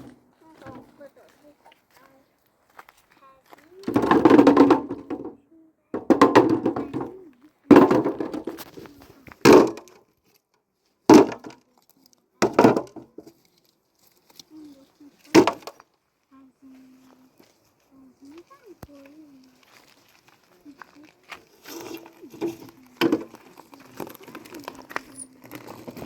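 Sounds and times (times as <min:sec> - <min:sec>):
person speaking: 0:00.0 - 0:02.4, 0:03.1 - 0:09.6, 0:14.4 - 0:15.7, 0:16.3 - 0:19.9, 0:20.5 - 0:26.0
sharp knocks: 0:06.0 - 0:07.1.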